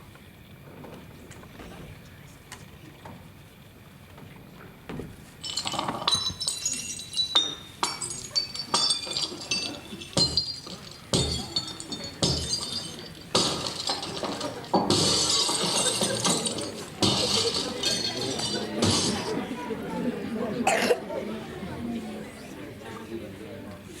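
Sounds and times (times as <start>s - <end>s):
dishes and glassware clinking: 5.4s - 19.6s.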